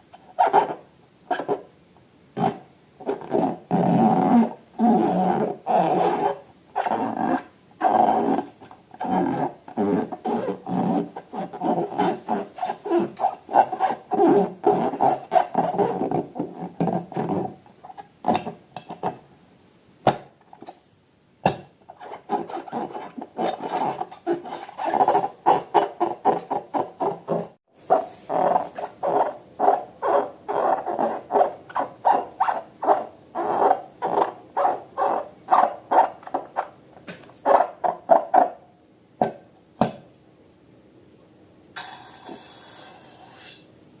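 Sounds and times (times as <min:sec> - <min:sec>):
rubber balloons squeaking: 0:00.4 - 0:01.6, 0:02.4 - 0:17.6, 0:21.9 - 0:36.8.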